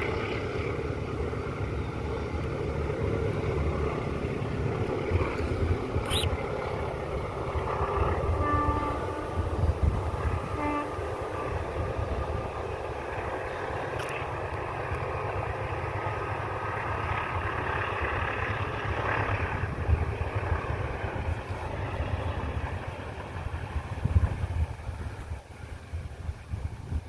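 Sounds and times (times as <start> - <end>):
train rumbling and clattering: 0.0 - 27.0
train horn blasts: 8.0 - 11.6.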